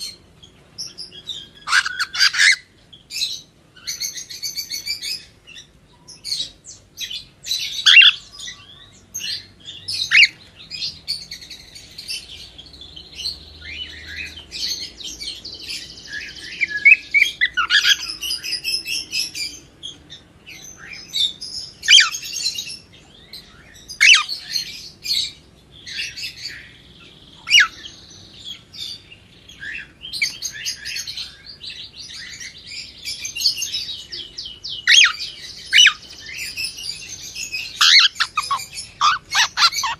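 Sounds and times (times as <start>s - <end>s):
cockatiel chirping and whistling: 37.7s - 39.9s.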